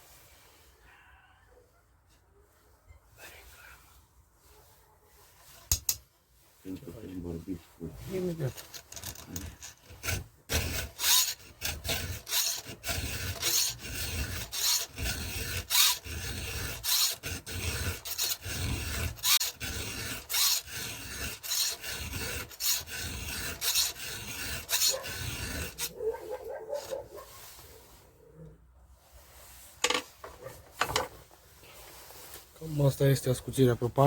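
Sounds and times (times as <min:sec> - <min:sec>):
file rasping on chainsaw chain: 0:08.1 - 0:27.2.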